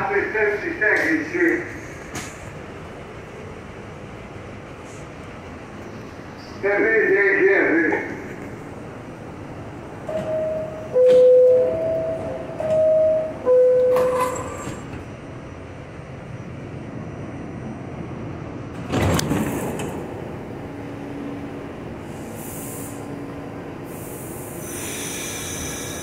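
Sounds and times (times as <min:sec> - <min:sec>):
train interior hum: 0:00.0 - 0:26.0
two-note door chime: 0:10.1 - 0:14.4.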